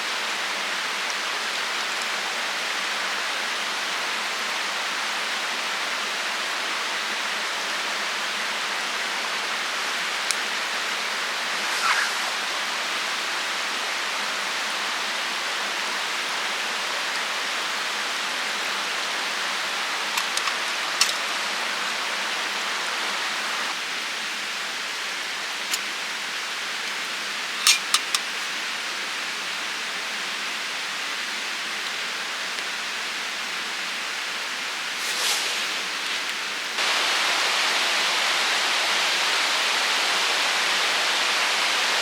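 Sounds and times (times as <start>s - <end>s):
steady rushing noise: 10.7s - 13.9s, 34.7s - 42.0s.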